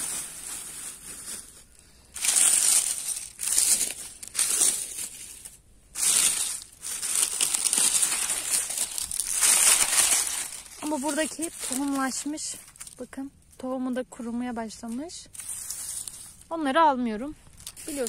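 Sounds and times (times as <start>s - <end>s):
rustling and crunching greens: 0.0s - 18.0s.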